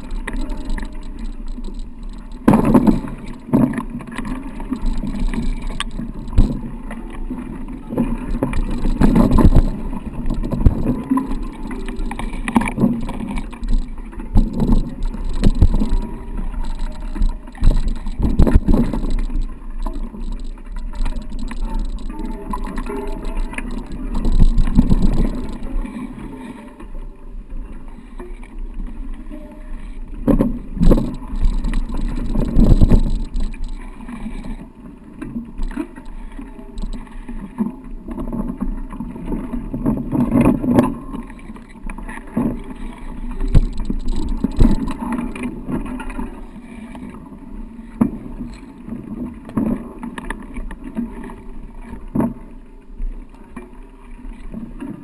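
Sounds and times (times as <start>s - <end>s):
bike knocks and rattles: 0.0s - 3.8s, 8.4s - 25.6s, 30.3s - 33.8s
wind on microphone: 8.2s - 25.8s, 30.5s - 34.6s.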